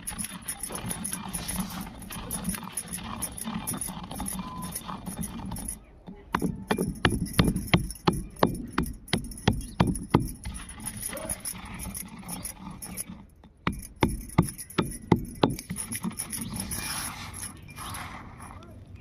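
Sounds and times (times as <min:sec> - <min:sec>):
dull thuds working soil: 0:00.0 - 0:18.6
low scraping rustle: 0:16.4 - 0:19.0.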